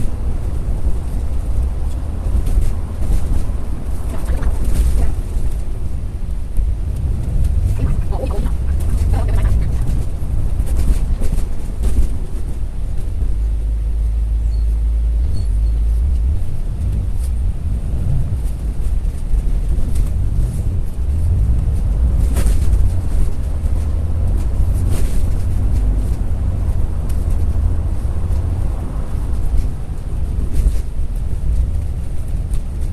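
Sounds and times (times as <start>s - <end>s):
bus rumbling in motion: 0.0s - 32.9s.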